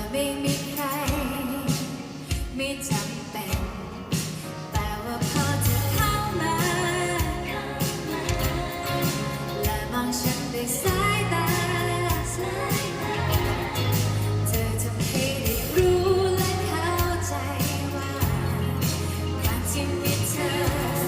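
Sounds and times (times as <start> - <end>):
live band playing pop song: 0.0 - 21.0
person singing: 0.0 - 21.0.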